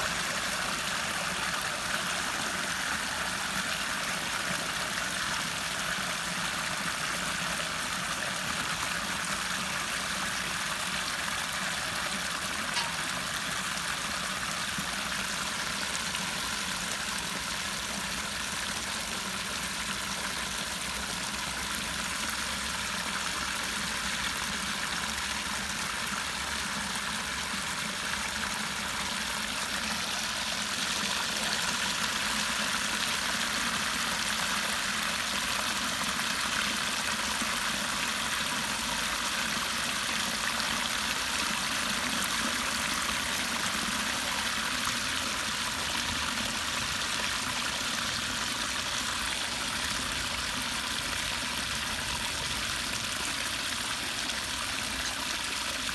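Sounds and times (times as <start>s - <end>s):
water rushing through a drain: 0.0s - 55.9s.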